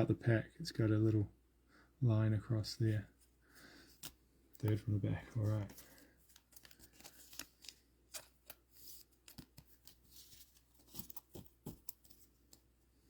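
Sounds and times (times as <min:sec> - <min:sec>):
cardboard cards being shuffled: 0:04.0 - 0:12.7.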